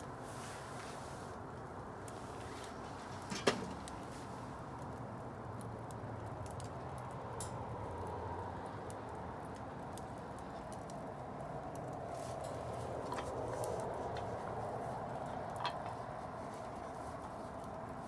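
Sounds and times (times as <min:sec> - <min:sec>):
low rush of fire: 0:00.0 - 0:07.6
bonfire crackling: 0:00.0 - 0:18.0.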